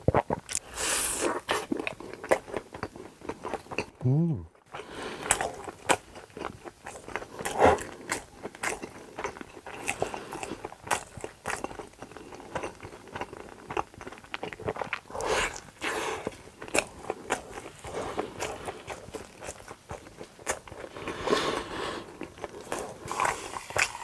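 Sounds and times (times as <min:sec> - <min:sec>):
crunchy bites and chewing: 0:05.2 - 0:24.0.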